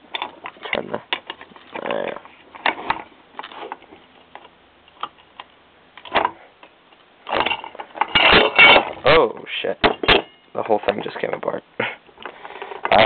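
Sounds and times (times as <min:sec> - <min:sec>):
metal clank: 0:07.3 - 0:09.0, 0:09.8 - 0:10.5
metal engine parts clinking: 0:07.3 - 0:09.0, 0:09.8 - 0:11.4.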